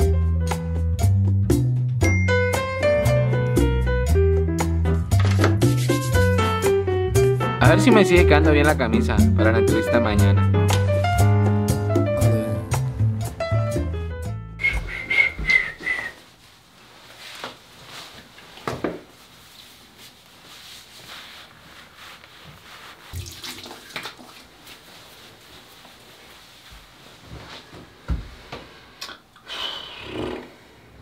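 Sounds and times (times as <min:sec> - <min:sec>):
water running from a tap: 0:23.1 - 0:24.5
water splashing in a sink: 0:23.1 - 0:24.9.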